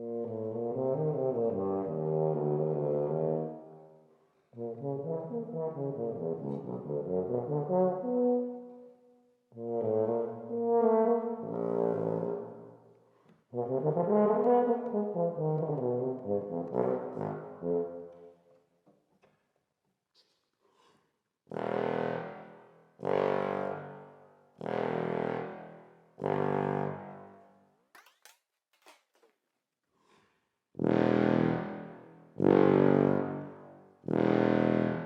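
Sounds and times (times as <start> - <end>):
muted tuba playing: 0.0 - 3.7, 4.6 - 8.9, 9.5 - 12.8, 13.5 - 18.4, 21.5 - 24.0, 30.8 - 35.0.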